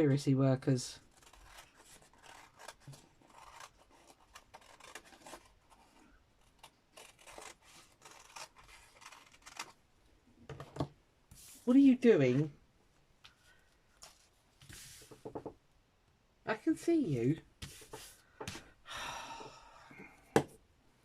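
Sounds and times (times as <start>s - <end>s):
scissors snipping paper: 1.1s - 5.6s, 6.5s - 9.7s.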